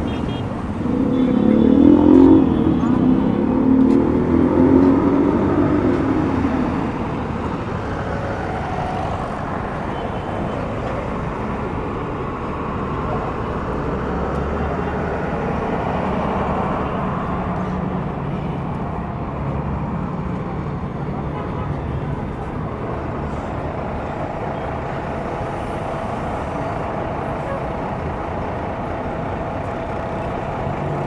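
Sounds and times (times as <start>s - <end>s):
vehicle passing by: 0.0s - 9.6s
traffic noise: 0.0s - 31.0s.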